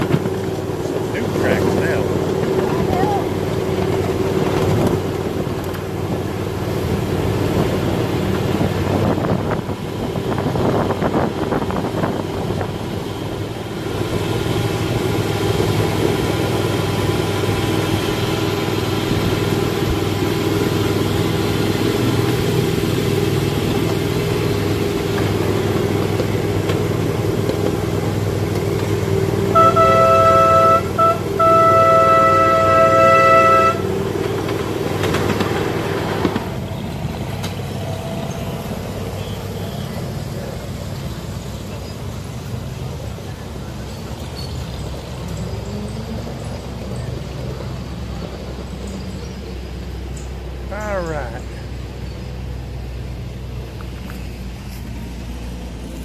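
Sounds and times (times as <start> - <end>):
miniature train running: 0.0 - 8.6, 11.4 - 56.0
train horn: 29.4 - 34.2.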